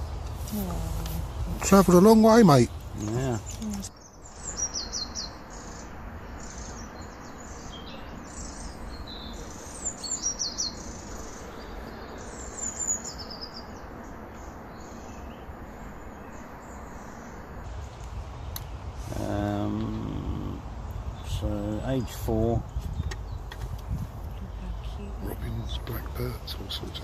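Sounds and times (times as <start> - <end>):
steady low rumble: 0.0 - 3.9
small songbirds singing: 0.0 - 27.0.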